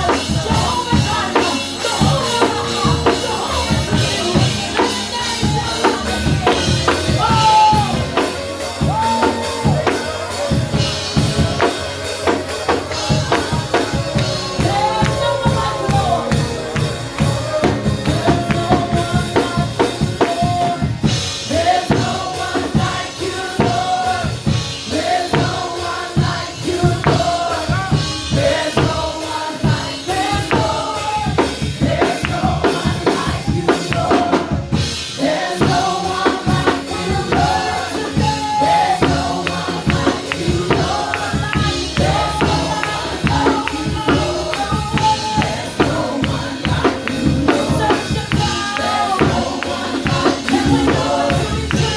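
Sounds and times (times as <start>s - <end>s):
drum kit beat: 0.0s - 51.9s
voices singing: 0.0s - 51.9s
worship band playing: 0.0s - 51.9s.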